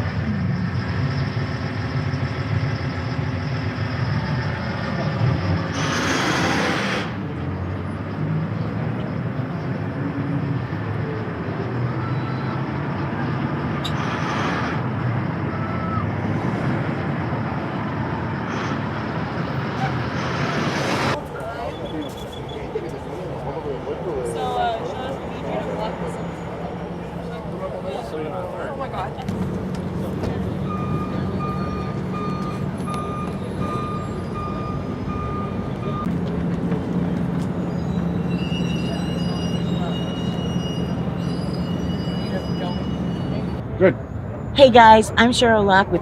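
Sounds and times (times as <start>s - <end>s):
reversing alarm beeping: 0.0s - 5.8s, 30.6s - 36.2s, 37.4s - 43.7s
vehicle engines rumbling: 0.0s - 46.0s.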